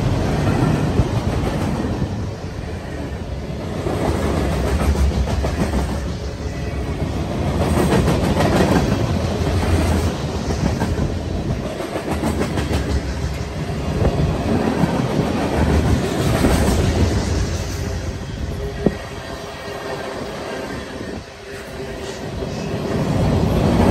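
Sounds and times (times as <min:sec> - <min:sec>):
freight train wheels rumbling: 0:00.0 - 0:23.9.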